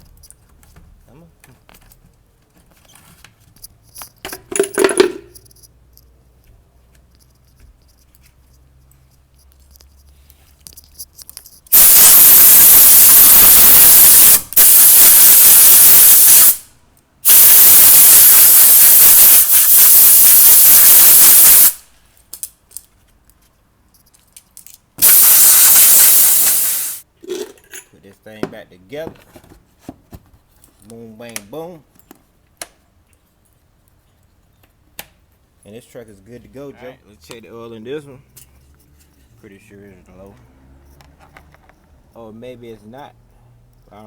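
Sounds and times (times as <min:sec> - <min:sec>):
air blow gun hissing: 0:11.7 - 0:21.9, 0:25.0 - 0:27.0.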